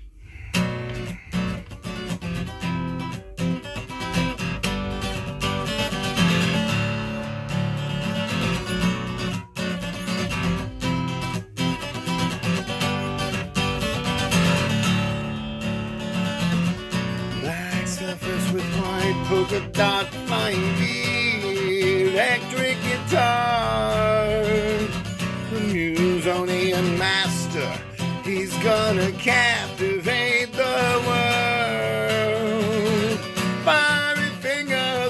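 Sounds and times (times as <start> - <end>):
guitar strumming chords: 0.1 - 35.0.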